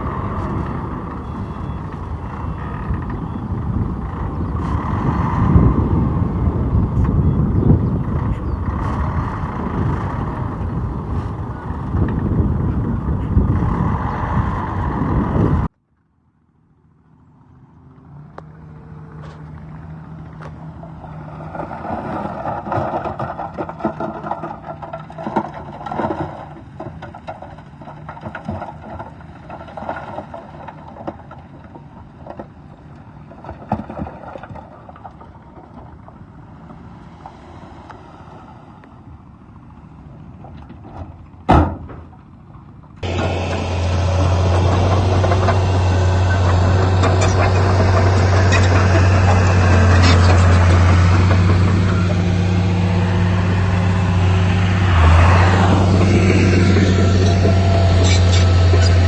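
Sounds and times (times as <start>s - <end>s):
diesel engine humming: 0.0s - 15.8s, 16.5s - 33.5s, 34.7s - 59.0s
machinery clanks and knocks: 43.0s - 59.0s.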